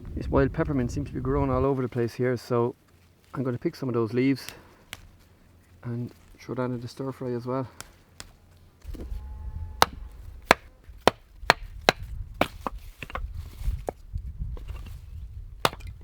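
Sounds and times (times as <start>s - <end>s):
low rumble: 8.8s - 12.4s.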